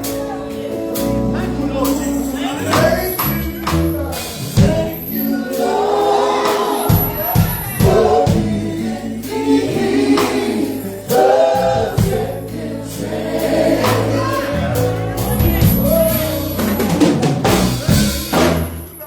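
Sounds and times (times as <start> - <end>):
gospel group singing in harmony: 0.0 - 18.9
bass notes: 0.0 - 19.0
drum hits: 6.9 - 8.7, 15.2 - 18.9.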